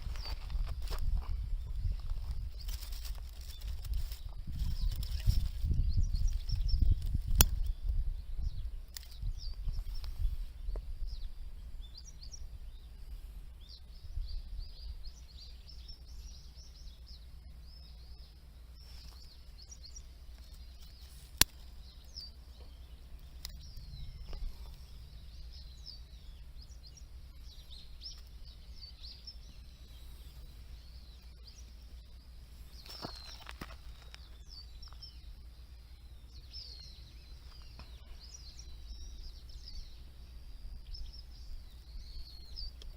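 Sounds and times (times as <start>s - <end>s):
small birds chirping: 0.0s - 42.9s
low rumble: 21.7s - 42.9s.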